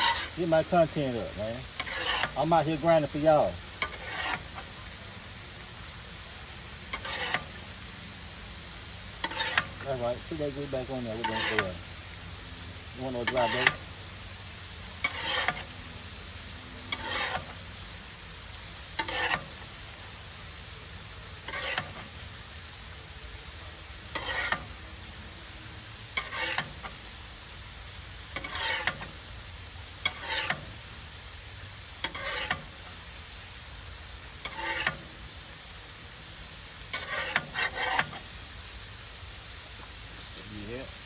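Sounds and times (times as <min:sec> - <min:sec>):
metal spatula scraping griddle: 0:00.0 - 0:05.0, 0:06.0 - 0:11.9, 0:12.9 - 0:14.0, 0:14.8 - 0:15.8, 0:16.8 - 0:17.9, 0:18.6 - 0:20.0, 0:21.4 - 0:22.4, 0:24.0 - 0:25.1, 0:26.1 - 0:27.1, 0:28.2 - 0:29.3, 0:29.9 - 0:31.0, 0:31.9 - 0:33.0, 0:34.3 - 0:35.4, 0:36.8 - 0:38.4
meat sizzling on a griddle: 0:00.0 - 0:41.0.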